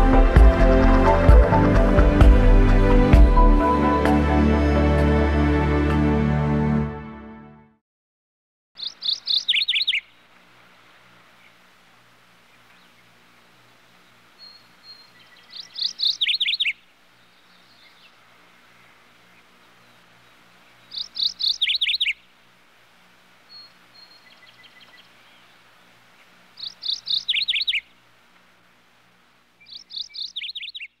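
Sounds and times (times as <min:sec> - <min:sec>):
bird chirping: 0:08.8 - 0:10.2, 0:14.0 - 0:18.2, 0:18.8 - 0:22.2, 0:23.5 - 0:25.9, 0:26.6 - 0:28.0, 0:29.6 - 0:31.0.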